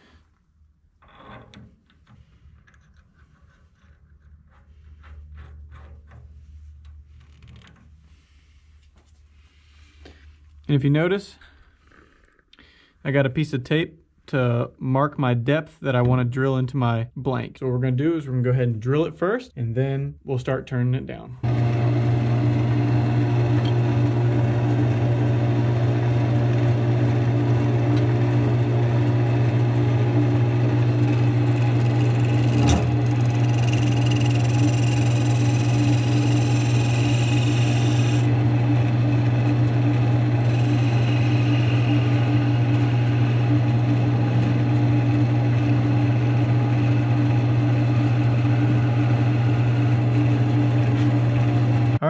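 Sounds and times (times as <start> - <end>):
wood lathe humming: 21.4 - 52.0.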